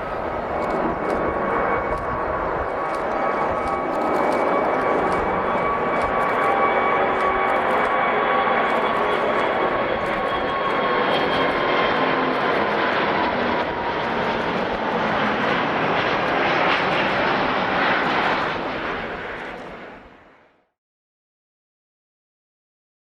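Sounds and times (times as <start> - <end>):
jet engines roaring and whining: 0.0 - 20.6.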